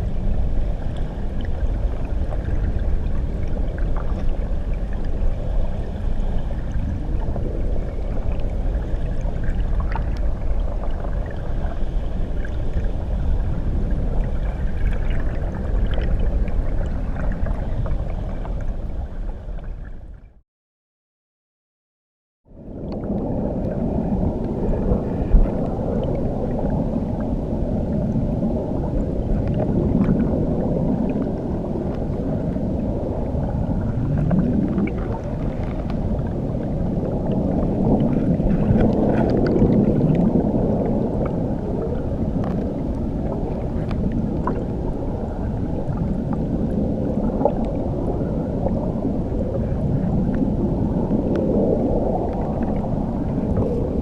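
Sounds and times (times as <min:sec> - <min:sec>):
underwater rush of churning water: 0:00.0 - 0:20.3, 0:22.6 - 0:54.0
faint bubbling ticks: 0:06.5 - 0:13.0, 0:22.8 - 0:27.3, 0:34.0 - 0:44.8, 0:47.2 - 0:47.9, 0:51.2 - 0:53.9.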